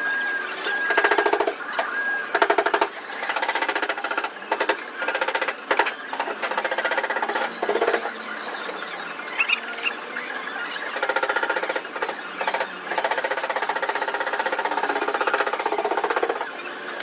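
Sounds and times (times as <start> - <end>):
power tool rapid hammering: 0.0 - 17.0.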